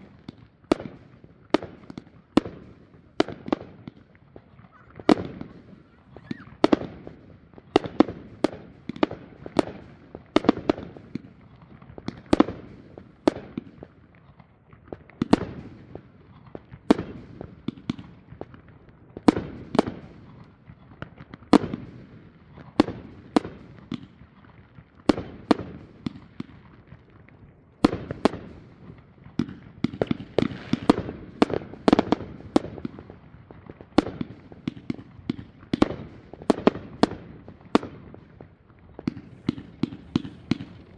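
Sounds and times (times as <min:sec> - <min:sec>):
fireworks banging: 0:27.8 - 0:40.9.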